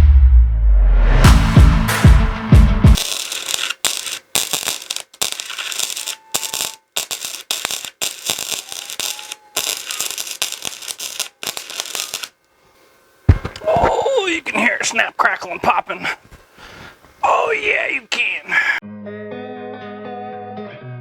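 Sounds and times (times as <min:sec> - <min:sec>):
welding arc crackling: 0:03.0 - 0:12.5.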